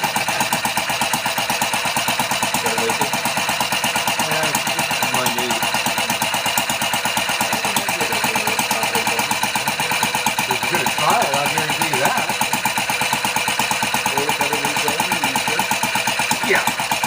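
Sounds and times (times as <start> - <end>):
small homemade engine running: 0.0 - 17.0.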